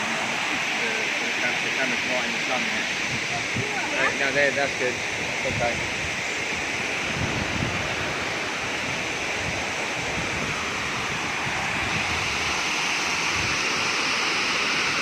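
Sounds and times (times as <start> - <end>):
waterfall rushing: 0.0 - 15.0
wind buffeting microphone: 2.9 - 12.6, 13.2 - 13.8.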